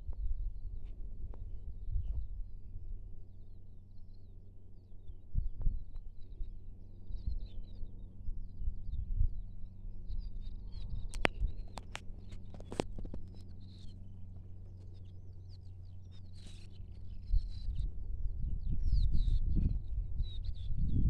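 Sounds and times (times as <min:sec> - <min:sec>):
steady low rumble: 0:00.0 - 0:21.0
small birds chirping: 0:00.1 - 0:21.0
sharp clicks: 0:11.1 - 0:13.5.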